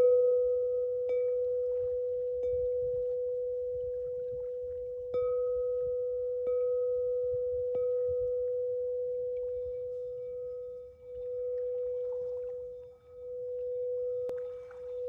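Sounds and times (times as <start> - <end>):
faint low rumble: 0.0 - 15.0
singing bowl ringing: 0.0 - 15.0.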